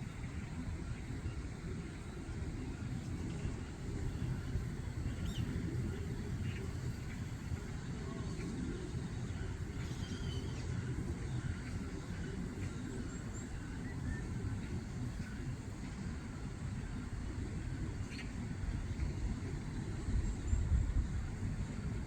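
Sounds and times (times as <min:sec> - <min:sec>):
low outdoor rumble: 0:00.0 - 0:22.0
faint bird chirps: 0:08.0 - 0:15.4.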